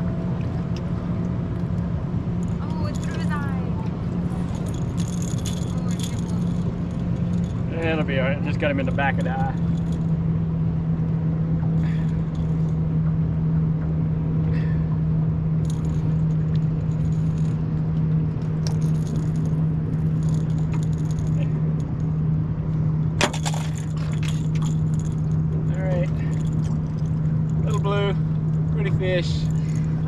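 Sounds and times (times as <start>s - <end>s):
light metallic rattles: 0.0s - 10.4s, 11.0s - 30.0s
boat motor humming: 0.0s - 30.0s.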